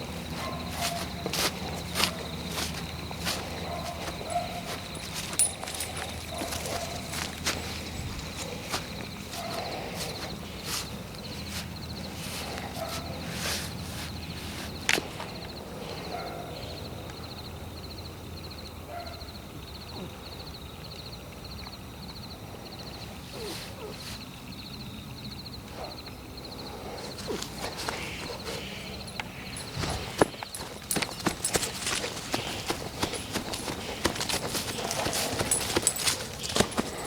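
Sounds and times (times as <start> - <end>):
footsteps in forest: 0.0 - 15.5, 26.6 - 37.0
insects chirping: 0.0 - 37.0.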